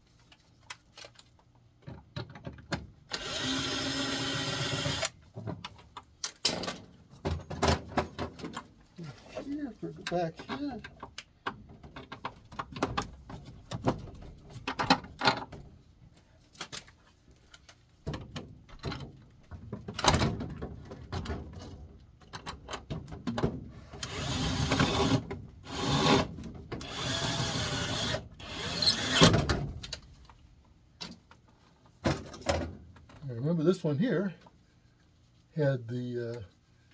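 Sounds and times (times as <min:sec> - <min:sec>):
power drill driving screws: 0:03.1 - 0:05.2, 0:24.0 - 0:29.4.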